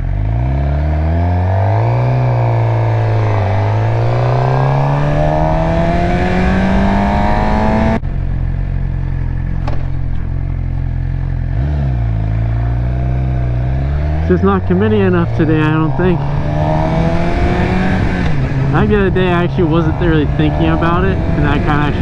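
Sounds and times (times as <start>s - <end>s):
motorcycle engine accelerating: 0.0s - 22.0s
engine rev blip: 11.5s - 22.0s.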